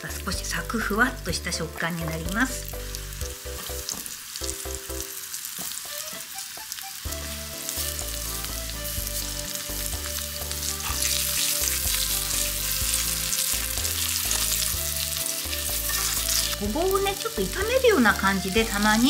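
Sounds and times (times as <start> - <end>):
vegetable pieces sizzling in oil: 0.0 - 19.0.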